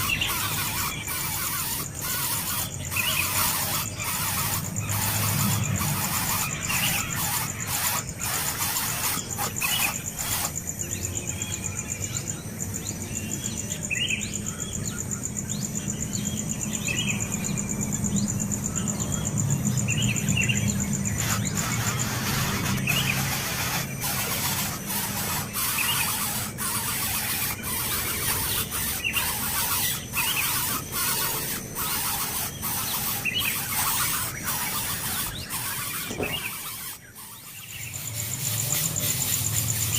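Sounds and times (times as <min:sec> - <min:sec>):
baby birds squeaking: 0:00.0 - 0:10.8, 0:20.1 - 0:39.9.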